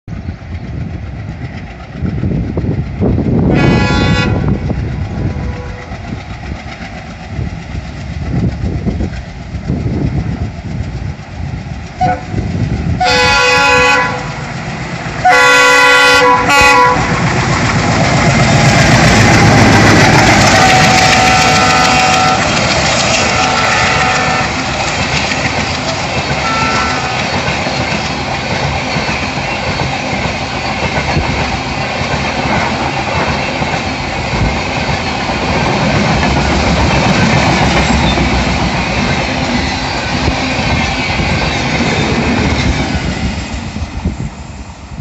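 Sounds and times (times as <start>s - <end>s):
diesel locomotive engine rumble: 0.1s - 45.0s
wheel and rail noise: 0.1s - 45.0s
train horn blasts: 3.5s - 6.0s, 12.0s - 12.4s, 13.0s - 14.4s, 15.2s - 17.2s, 20.2s - 24.8s, 26.4s - 27.4s.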